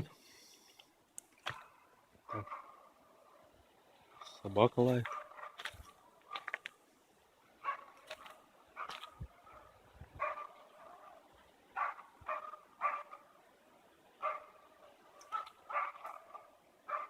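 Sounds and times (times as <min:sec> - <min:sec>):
dog barking faintly: 0:05.0 - 0:06.6, 0:07.6 - 0:08.0, 0:08.8 - 0:13.3, 0:14.2 - 0:14.6, 0:15.2 - 0:17.0.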